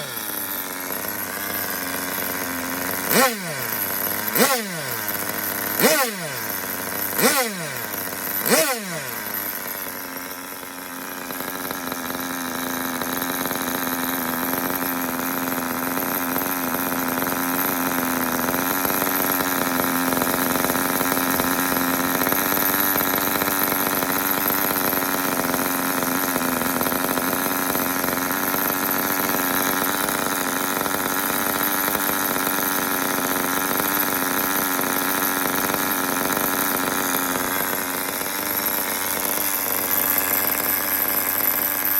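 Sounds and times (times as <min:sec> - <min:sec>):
small nitro engine buzzing: 0:00.0 - 0:41.9
engine rev blip: 0:03.0 - 0:09.7.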